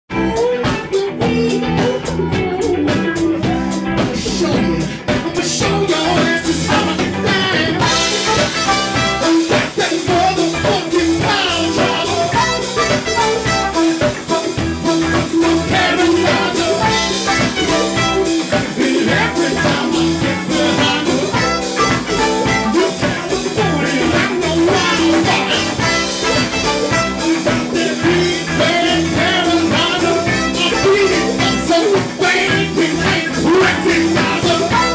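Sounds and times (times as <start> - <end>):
live band playing: 0.1 - 34.9.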